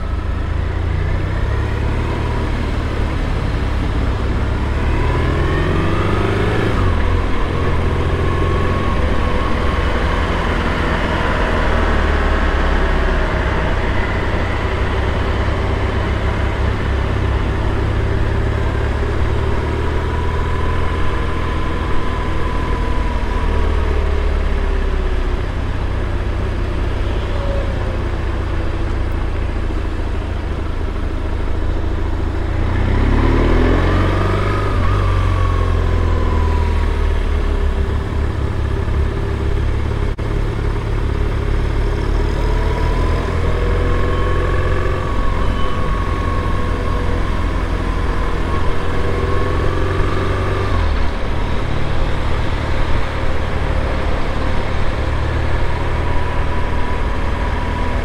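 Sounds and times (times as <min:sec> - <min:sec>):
road and traffic noise: 0:00.0 - 0:58.0.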